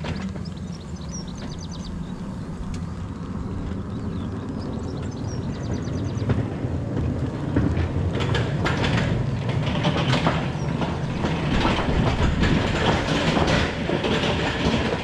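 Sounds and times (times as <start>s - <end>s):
train rumbling on track: 0.0s - 15.0s
wheel clicks and knocks: 5.7s - 15.0s.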